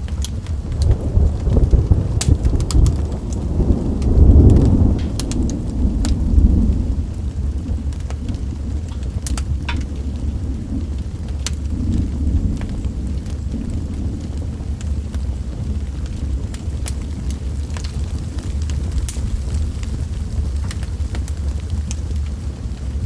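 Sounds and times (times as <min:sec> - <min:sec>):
rolling thunder: 0:00.0 - 0:23.0
sharp crackles: 0:00.0 - 0:23.0
steady rain: 0:00.0 - 0:23.0.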